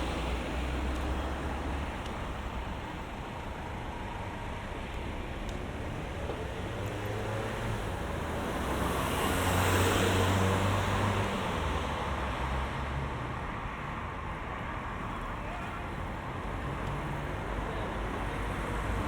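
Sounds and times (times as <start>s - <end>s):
road traffic with engine hum: 0.0s - 19.0s
vehicle passing close by: 8.4s - 11.6s.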